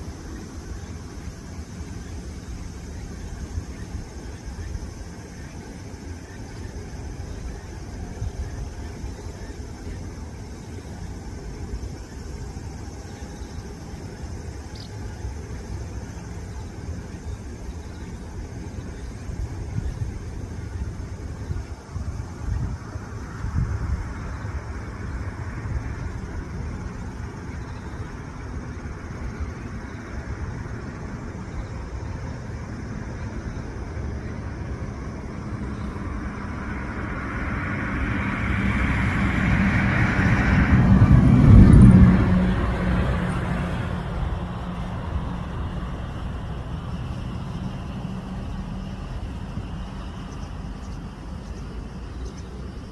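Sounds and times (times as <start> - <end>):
traffic rumble: 0.0 - 52.9
vehicle passing close: 32.4 - 52.9.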